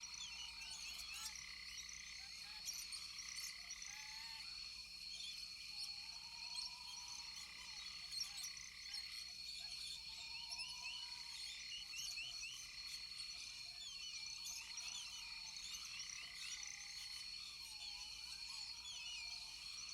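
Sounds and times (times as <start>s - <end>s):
frogs chirping: 6.0s - 19.9s.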